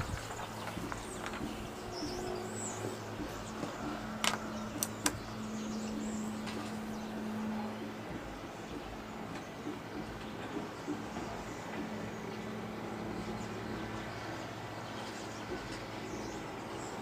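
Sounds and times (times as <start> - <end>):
small birds chirping: 0.0 - 17.0
steady low hum: 0.0 - 17.0
sharp clicks: 3.6 - 5.3.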